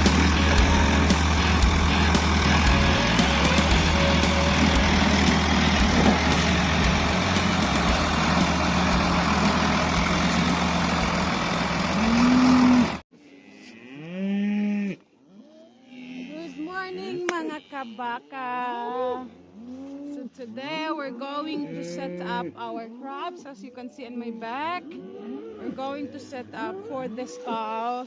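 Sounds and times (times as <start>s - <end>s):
cow mooing: 0.0s - 9.6s, 11.8s - 20.3s, 21.0s - 23.4s
engine and rushing noise: 0.0s - 13.0s.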